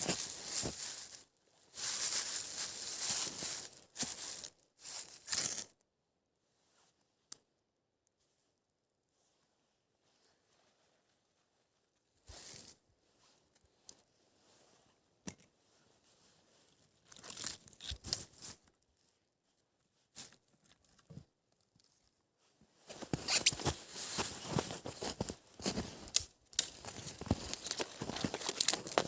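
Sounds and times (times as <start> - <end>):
crunching and crumpling: 0.0 - 1.2, 17.0 - 18.4, 23.0 - 29.0.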